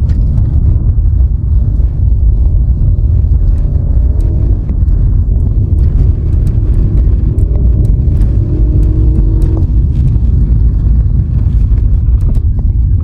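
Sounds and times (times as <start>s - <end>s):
vehicle road rumble: 0.0s - 13.0s
engine note rising: 2.9s - 11.8s.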